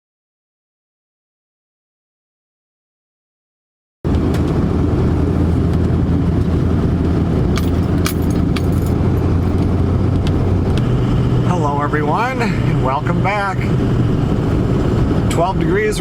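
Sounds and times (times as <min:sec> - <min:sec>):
truck engine and road rumble: 0:04.0 - 0:16.0.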